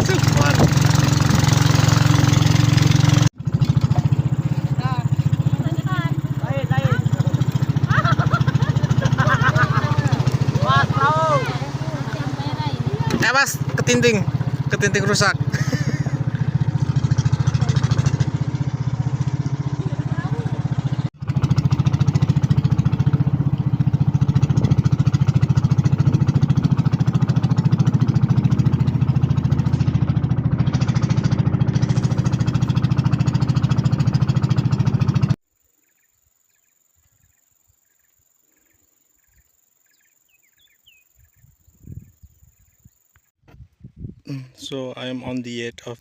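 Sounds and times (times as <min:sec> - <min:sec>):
boat engine chugging: 0:00.0 - 0:35.4
faint chirps: 0:35.6 - 0:43.2.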